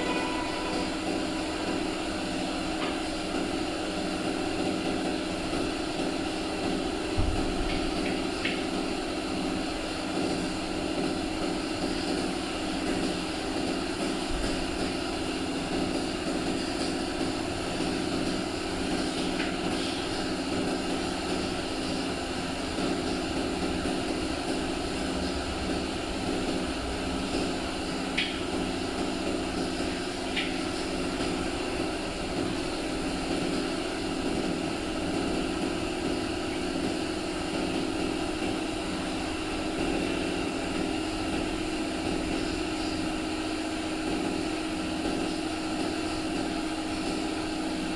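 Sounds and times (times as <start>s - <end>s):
workshop machinery droning: 0.0s - 47.9s.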